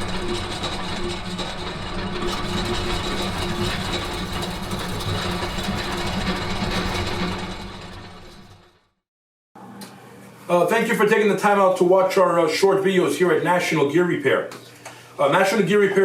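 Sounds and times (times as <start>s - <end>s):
machinery humming with a whine: 0.0s - 8.7s.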